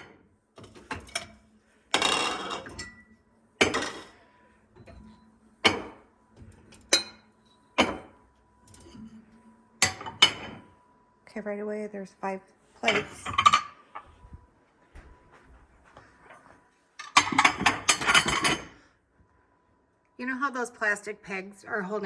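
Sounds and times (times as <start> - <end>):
plates and dishes clattering: 3.6 - 4.2, 7.8 - 8.2, 9.8 - 10.7, 12.9 - 13.8, 17.0 - 18.8.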